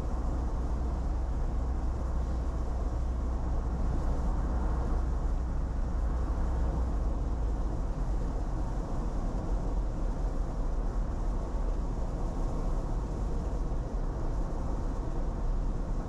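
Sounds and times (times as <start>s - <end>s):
car engine rumble: 0.0s - 16.0s.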